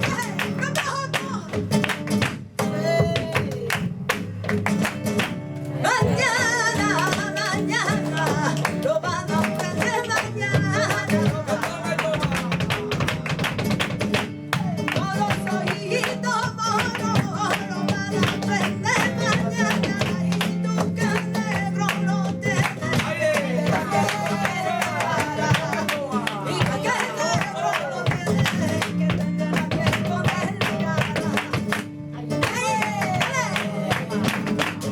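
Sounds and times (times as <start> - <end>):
acoustic guitar: 0.0 - 34.9
person singing: 2.6 - 3.8, 14.6 - 34.9.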